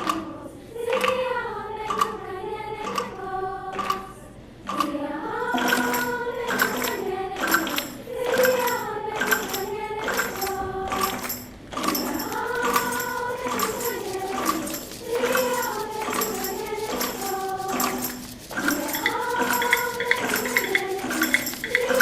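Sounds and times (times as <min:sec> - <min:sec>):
choir singing with accompaniment: 0:00.0 - 0:22.0
sharp percussion hits: 0:05.5 - 0:22.0.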